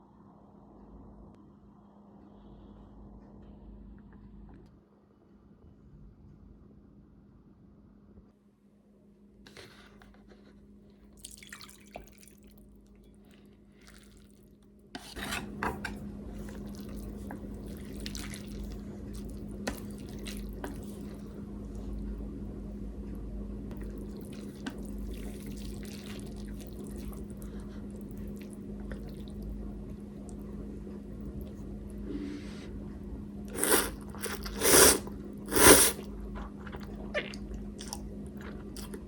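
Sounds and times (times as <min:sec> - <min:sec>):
steady low hum: 0:00.0 - 0:11.2, 0:12.6 - 0:39.0
wet slurping of noodles and broth: 0:33.5 - 0:38.0.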